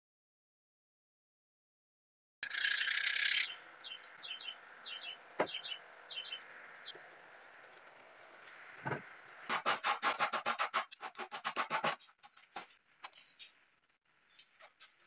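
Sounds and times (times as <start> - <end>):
small bird chirping: 2.5 - 7.1, 12.0 - 13.6.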